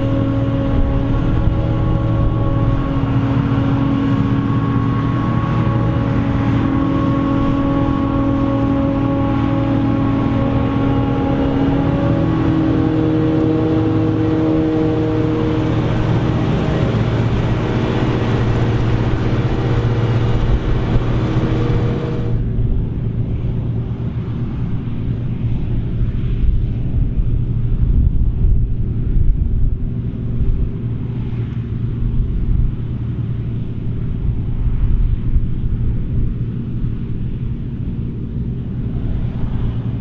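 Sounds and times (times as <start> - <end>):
machine whining tones: 0.0 - 22.6
heavy engine drone: 0.0 - 40.0.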